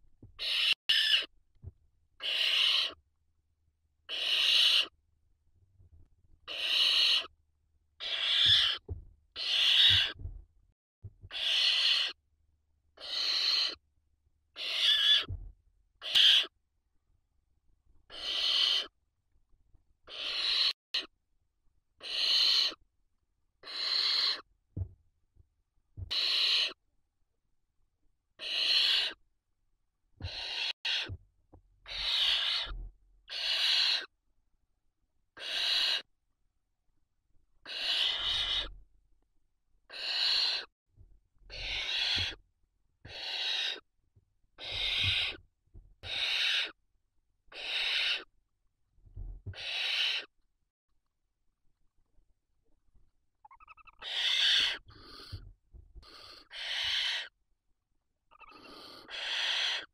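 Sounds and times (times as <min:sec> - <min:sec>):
owl chicks hissing calls: 0:00.4 - 0:01.3, 0:02.2 - 0:03.0, 0:04.1 - 0:05.0, 0:06.5 - 0:07.3, 0:08.0 - 0:08.8, 0:09.4 - 0:10.2, 0:11.3 - 0:12.2, 0:13.0 - 0:13.8, 0:14.6 - 0:15.3, 0:16.0 - 0:16.5, 0:18.1 - 0:18.9, 0:20.1 - 0:21.1, 0:22.0 - 0:22.8, 0:23.6 - 0:24.5, 0:26.1 - 0:26.8, 0:28.4 - 0:29.2, 0:30.2 - 0:31.1, 0:31.8 - 0:34.1, 0:35.4 - 0:36.1, 0:37.6 - 0:38.7, 0:39.9 - 0:40.7, 0:41.5 - 0:42.4, 0:43.1 - 0:43.8, 0:44.6 - 0:45.4, 0:46.0 - 0:46.8, 0:47.5 - 0:48.3, 0:49.5 - 0:50.3, 0:53.4 - 0:55.4, 0:56.0 - 0:57.3, 0:58.3 - 0:59.9.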